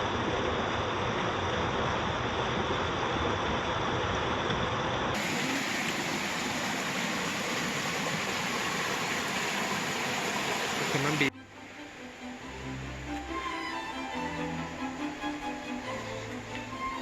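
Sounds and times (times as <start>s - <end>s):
stream rushing: 5.2s - 17.0s.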